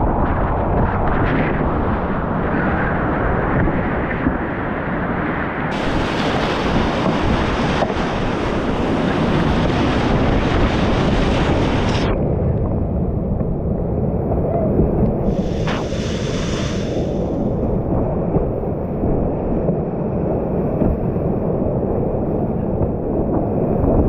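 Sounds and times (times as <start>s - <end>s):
wind buffeting microphone: 0.0s - 24.0s
whitewater rapids rushing: 5.7s - 12.0s.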